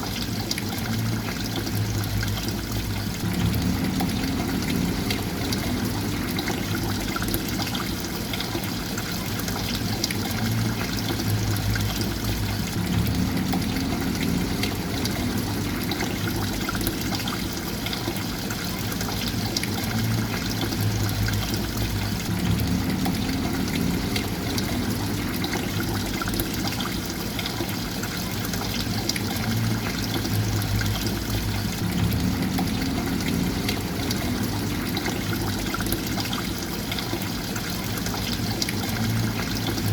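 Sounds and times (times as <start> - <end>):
water trickling and splashing: 0.0 - 39.9
low hum: 1.7 - 7.8, 10.6 - 17.3, 20.2 - 26.6, 29.4 - 36.0.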